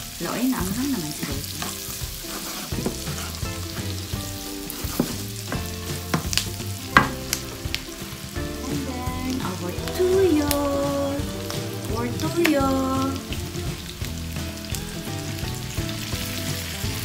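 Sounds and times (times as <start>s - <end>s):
food sizzling in a frying pan: 0.0s - 17.0s
spoon scraping a pan: 1.6s - 3.6s, 4.7s - 5.3s.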